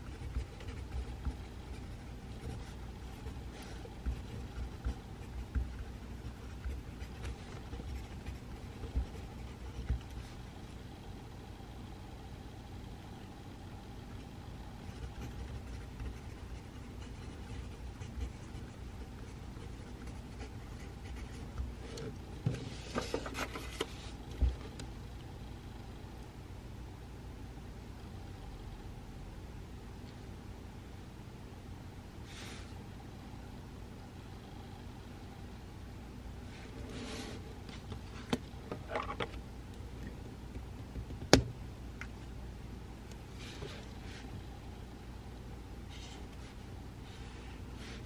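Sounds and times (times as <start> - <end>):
pencil scratching on paper: 0.0 - 10.4, 14.8 - 22.1
low room hum: 0.0 - 48.0.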